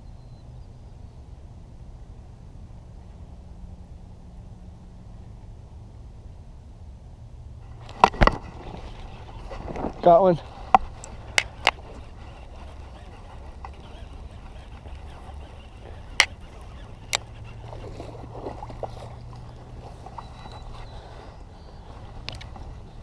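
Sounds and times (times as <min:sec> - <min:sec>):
faint background noise: 0:00.0 - 0:23.0
fishing reel clicks and knocks: 0:10.8 - 0:17.6.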